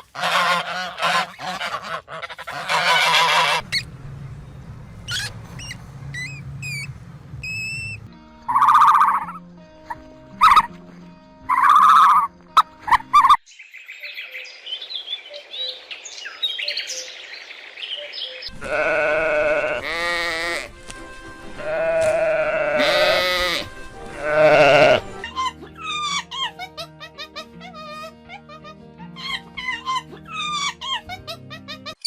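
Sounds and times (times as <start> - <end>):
background music: 6.9 - 13.4, 18.5 - 32.0
sheep or goats bleating: 18.5 - 20.7, 21.6 - 25.3.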